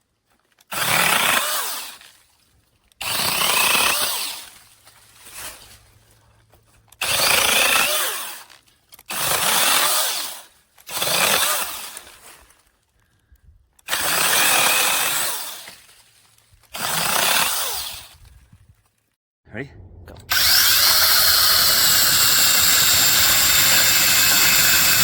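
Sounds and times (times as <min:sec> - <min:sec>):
mini chainsaw running in bursts: 0:07.0 - 0:08.5, 0:09.2 - 0:12.0, 0:13.9 - 0:15.7, 0:16.8 - 0:18.1, 0:20.3 - 0:25.0.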